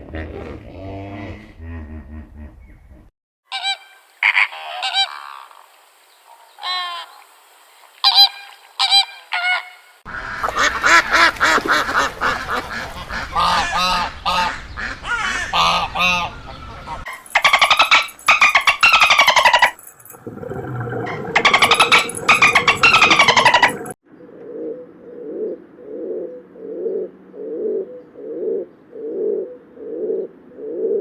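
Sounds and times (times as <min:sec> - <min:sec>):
birds honking: 0:10.1 - 0:24.0.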